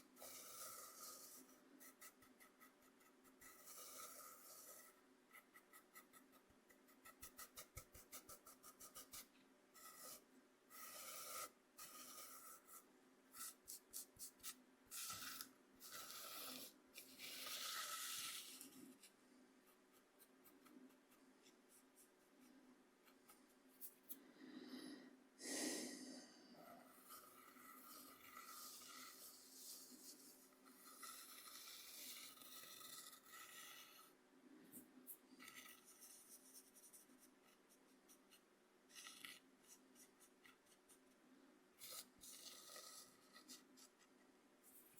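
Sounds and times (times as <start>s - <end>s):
cornmeal scraped on cutting board: 0.0s - 19.1s, 26.6s - 34.1s.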